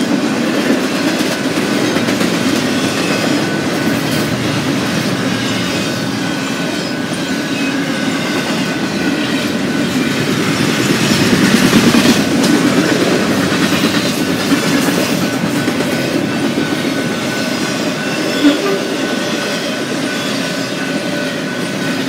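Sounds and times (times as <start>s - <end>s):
freight train wheels clattering: 0.0s - 22.0s.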